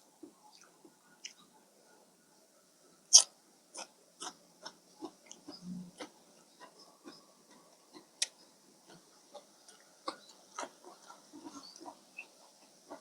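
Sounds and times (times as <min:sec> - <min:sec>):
person chewing: 0:03.1 - 0:13.0.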